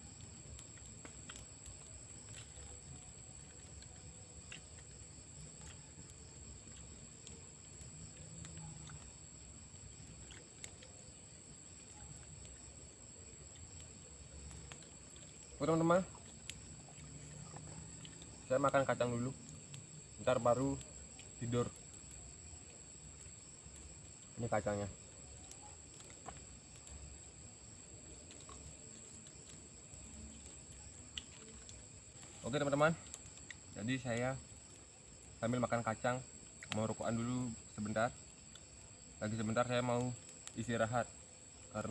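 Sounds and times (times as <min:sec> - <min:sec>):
crickets chirring: 0:00.0 - 0:41.9
night insects droning: 0:00.0 - 0:41.9
small clicks and crackles: 0:00.0 - 0:41.9.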